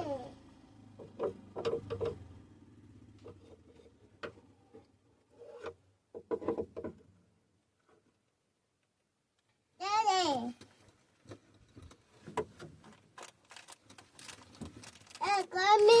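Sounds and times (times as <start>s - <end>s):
objects being handled: 10.6s - 16.0s.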